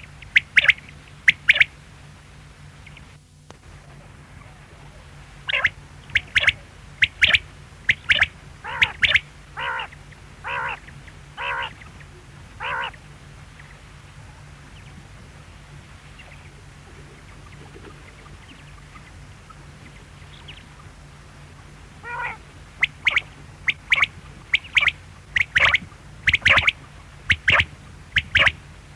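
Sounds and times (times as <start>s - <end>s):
quail calling: 0.0s - 1.8s, 5.5s - 13.1s, 22.0s - 28.6s.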